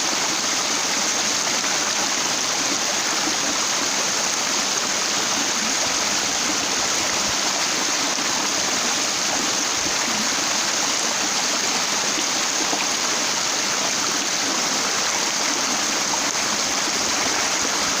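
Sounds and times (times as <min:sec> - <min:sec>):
stream flowing over rocks: 0:00.0 - 0:18.0.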